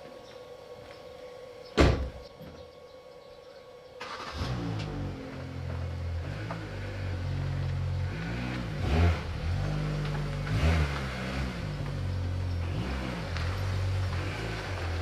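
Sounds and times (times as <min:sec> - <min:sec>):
diesel engine revving: 0:04.0 - 0:15.0.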